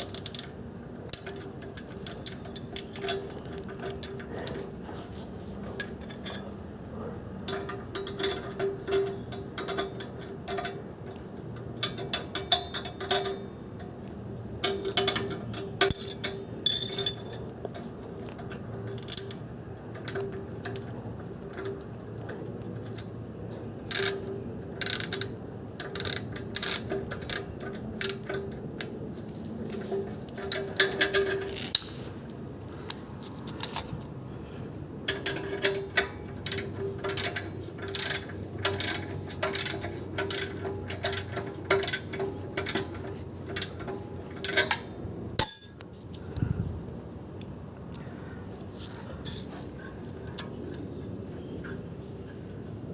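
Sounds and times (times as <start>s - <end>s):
hand tools clicking on metal: 0.0s - 4.7s, 7.4s - 13.4s, 14.6s - 23.1s, 35.1s - 46.2s, 49.2s - 49.7s
steady low hum: 32.1s - 52.9s.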